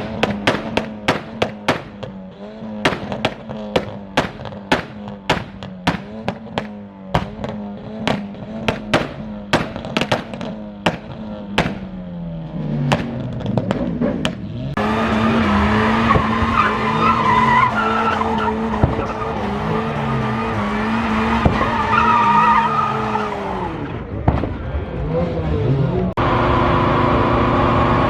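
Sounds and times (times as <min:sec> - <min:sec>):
sharp bangs: 0:00.0 - 0:17.2, 0:18.0 - 0:22.4
car engine revving: 0:00.0 - 0:28.0
tyres squealing: 0:15.5 - 0:23.4.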